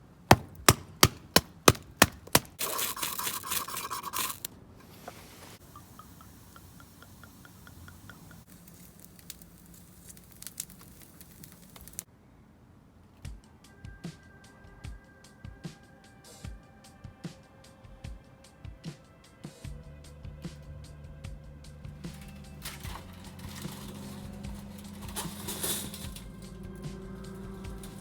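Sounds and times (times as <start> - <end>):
sharp knocks: 0.3 - 2.6
harsh scrape: 0.3 - 5.6, 22.0 - 28.0
small crackles: 2.2 - 12.1
faint regular ticking: 5.6 - 12.1.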